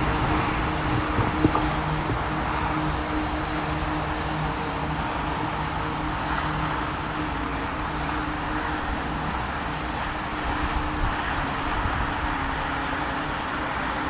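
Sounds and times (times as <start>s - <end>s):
low engine hum: 0.0s - 9.8s
train rolling rumble: 0.0s - 14.0s.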